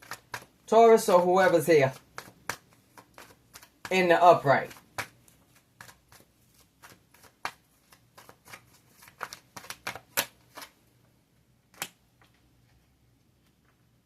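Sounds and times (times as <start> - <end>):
cards being shuffled: 0.0 - 10.8.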